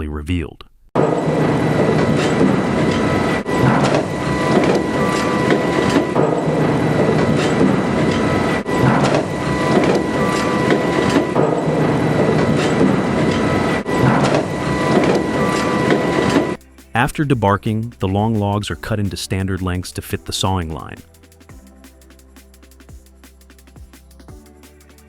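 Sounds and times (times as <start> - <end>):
high mechanical whine: 1.0 - 17.7.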